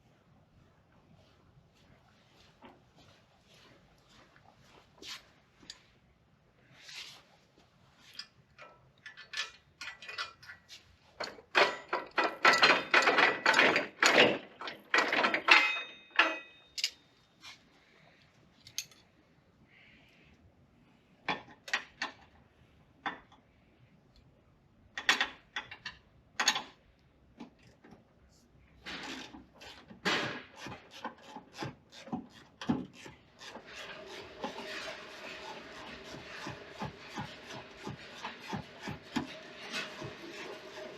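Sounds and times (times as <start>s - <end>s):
tools and metal parts clattering: 8.1s - 17.1s, 18.6s - 19.1s.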